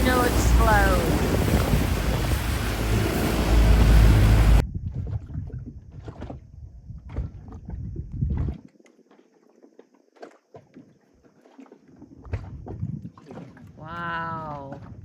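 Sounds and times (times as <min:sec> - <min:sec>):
low rumble: 0:00.0 - 0:05.8
wind buffeting microphone: 0:00.0 - 0:08.6.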